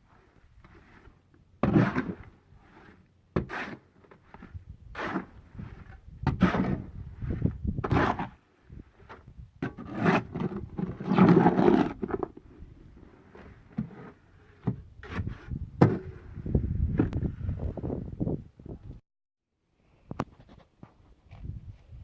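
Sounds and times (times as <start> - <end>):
hand tools scraping concrete: 0.0 - 8.4, 9.0 - 16.4.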